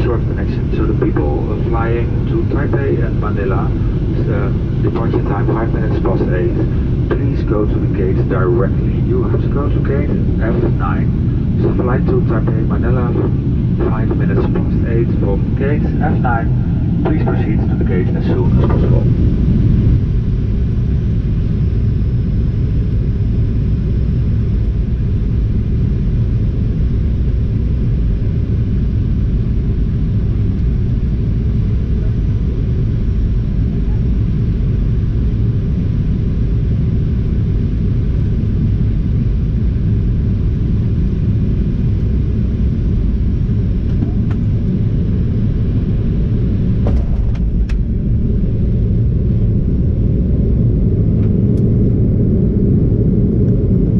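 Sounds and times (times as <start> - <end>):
airplane cabin rumble: 0.0 - 53.9.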